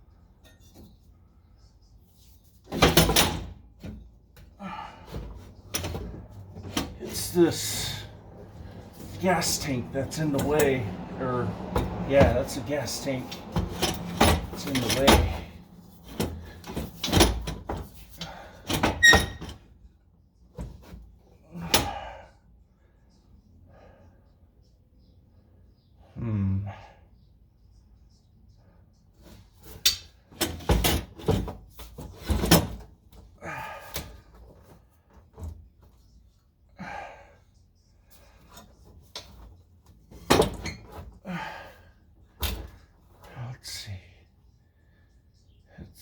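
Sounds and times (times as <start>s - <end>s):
exhaust pipe knocking and scraping: 5.1s - 19.4s.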